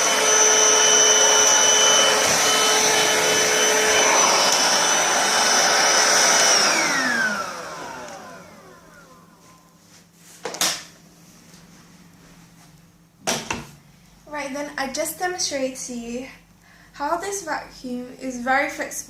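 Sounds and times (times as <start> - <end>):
stick vacuum motor whine: 0.0 - 9.7.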